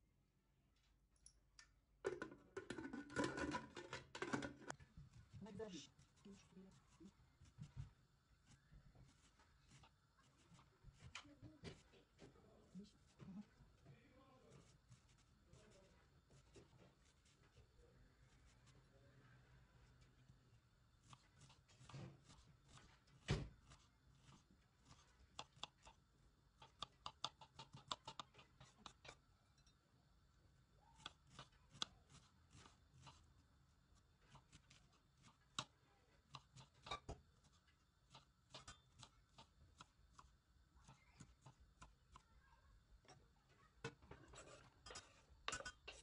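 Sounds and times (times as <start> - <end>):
food handling clicks and taps: 1.2 - 4.9, 21.1 - 29.8, 34.3 - 42.3.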